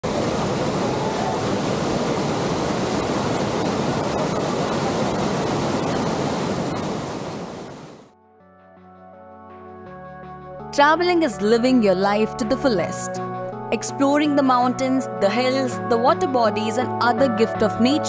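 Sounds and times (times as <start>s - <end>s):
waterfall roaring: 0.0s - 8.1s.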